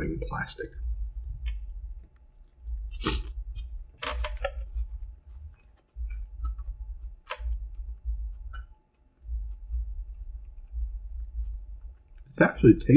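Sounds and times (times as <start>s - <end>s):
low rumble: 0.0s - 12.9s
person chewing crunchy food: 2.4s - 8.5s.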